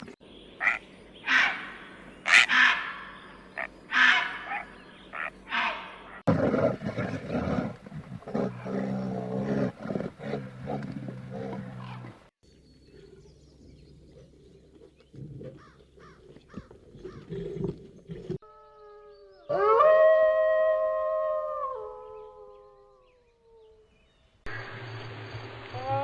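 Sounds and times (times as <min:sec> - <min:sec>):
animals howling: 0:18.4 - 0:24.0.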